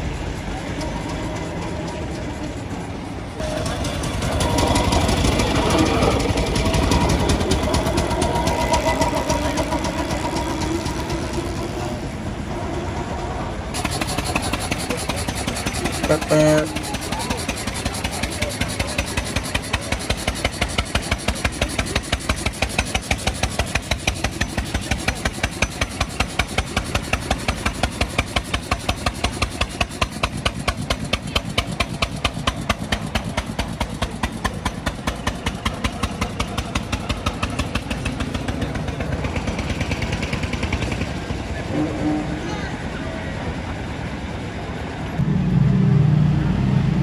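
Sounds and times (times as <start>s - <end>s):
car engine idling: 0.0s - 41.6s.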